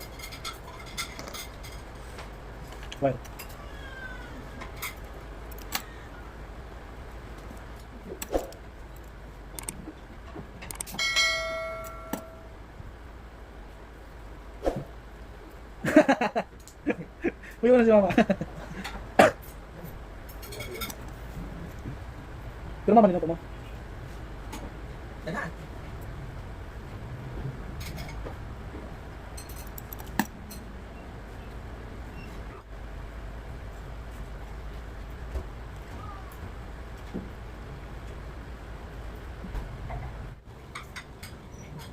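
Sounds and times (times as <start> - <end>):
steady low hum: 0.0 - 41.9
small hard parts clicking: 7.5 - 9.8, 10.6 - 12.3, 29.4 - 30.7
metal parts clicking and knocking: 9.0 - 9.8, 10.6 - 11.0, 29.4 - 30.7
metal piece ringing: 10.9 - 12.6.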